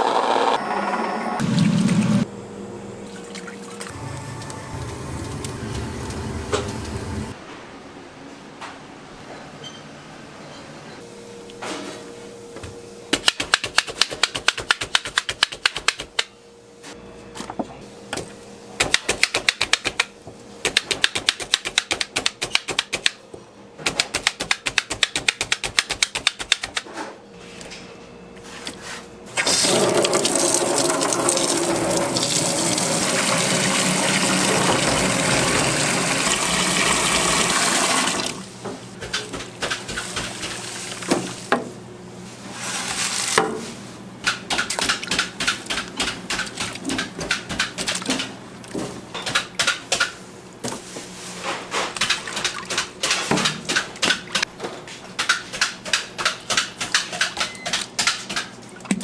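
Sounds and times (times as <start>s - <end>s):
water running from a tap: 29.4s - 38.4s.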